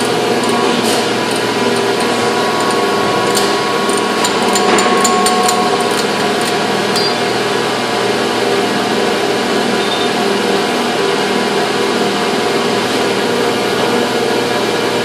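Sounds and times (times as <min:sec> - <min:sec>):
metal tools striking steel: 0:00.0 - 0:07.6
factory machine noise: 0:00.0 - 0:15.0.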